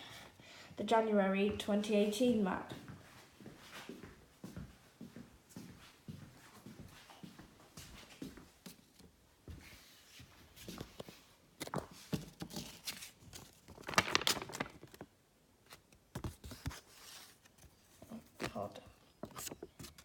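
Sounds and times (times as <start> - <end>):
paper rustling and crinkling: 10.6 - 20.0.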